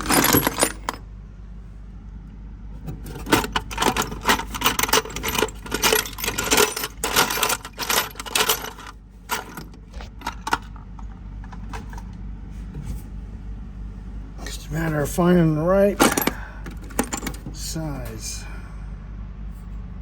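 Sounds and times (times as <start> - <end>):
metal nuts clinking and rattling: 0.0 - 1.0, 2.8 - 12.1, 15.9 - 18.4.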